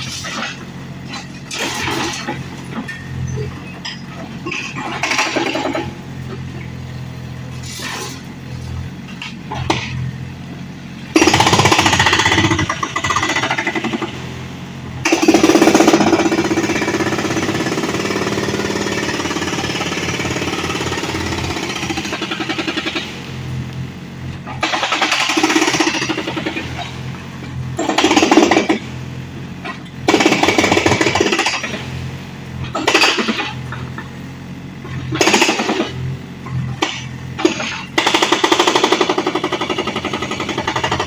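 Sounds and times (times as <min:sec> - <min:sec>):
excavator engine running: 0:00.0 - 0:41.0
hydraulic breaker hammering: 0:11.2 - 0:14.2, 0:15.0 - 0:23.2, 0:24.5 - 0:27.0, 0:27.8 - 0:28.9, 0:29.6 - 0:31.9, 0:32.7 - 0:34.0, 0:34.9 - 0:41.0.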